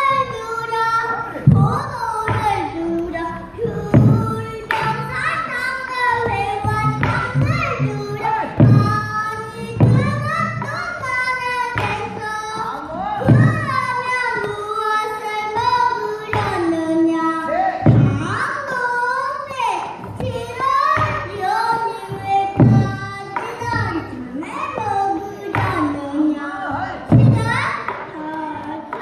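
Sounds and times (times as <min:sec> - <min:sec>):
person singing with sliding pitches: 0:00.0 - 0:29.0
deep barrel drum strokes: 0:01.4 - 0:14.1, 0:17.8 - 0:18.5, 0:20.2 - 0:25.1.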